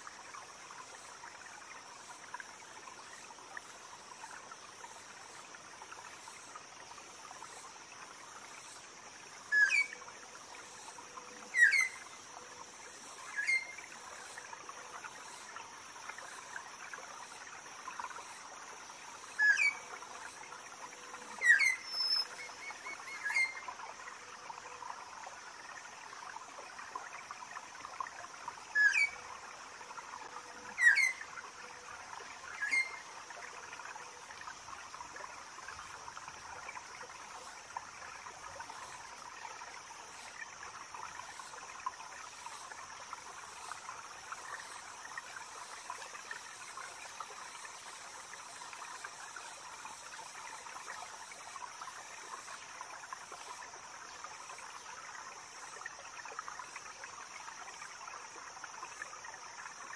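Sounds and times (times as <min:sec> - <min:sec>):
trickling stream: 0:00.0 - 0:59.9
high cicada drone: 0:19.3 - 0:24.3.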